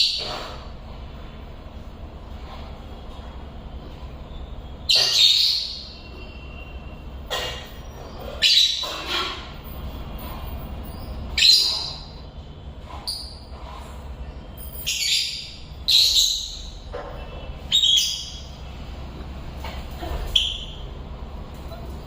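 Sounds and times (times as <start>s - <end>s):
lovebirds shrill calls: 4.4s - 6.9s, 7.6s - 9.5s, 10.8s - 12.2s, 14.5s - 16.9s, 17.6s - 18.6s.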